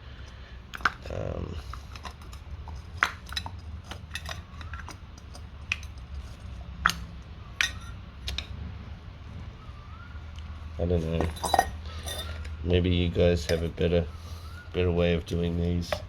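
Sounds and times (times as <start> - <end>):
metallic clinks and taps: 11.2 - 12.6.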